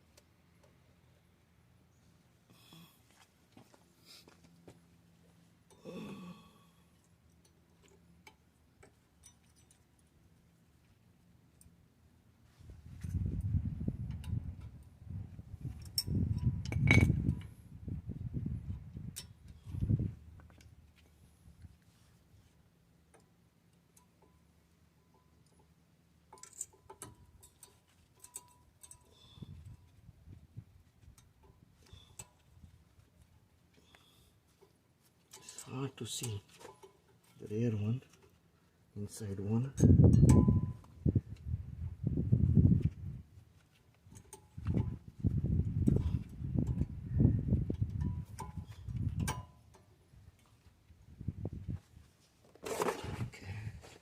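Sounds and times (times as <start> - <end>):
metallic clicks of brake pads: 25.1 - 30.0, 45.8 - 47.0, 47.6 - 50.6.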